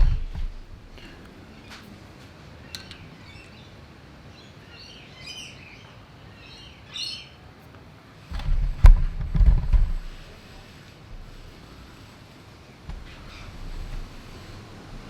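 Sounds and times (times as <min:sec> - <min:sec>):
low thumps: 0:00.0 - 0:01.0, 0:08.3 - 0:10.4, 0:12.9 - 0:15.0.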